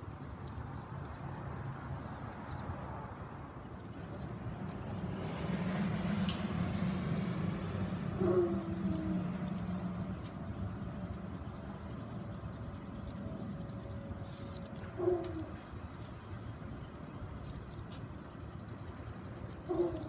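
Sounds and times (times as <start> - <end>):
marker scratching on foil: 9.4 - 20.0.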